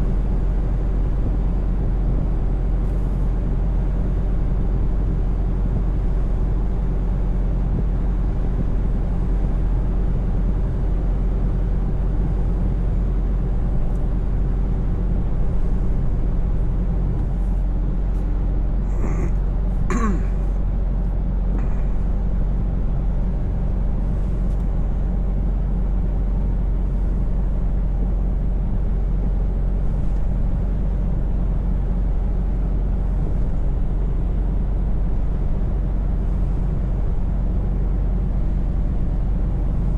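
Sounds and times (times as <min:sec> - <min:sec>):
truck engine droning: 0:00.0 - 0:39.9
short cough-like sound: 0:19.9 - 0:20.4.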